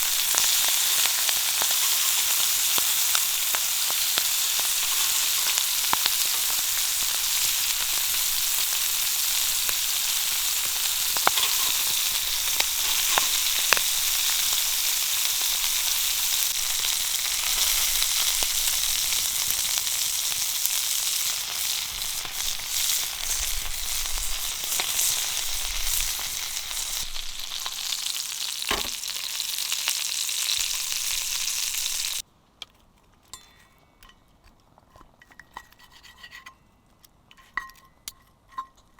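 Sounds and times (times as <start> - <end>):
meat sizzling in a frying pan: 0.0 - 32.2
fat popping: 28.7 - 29.1.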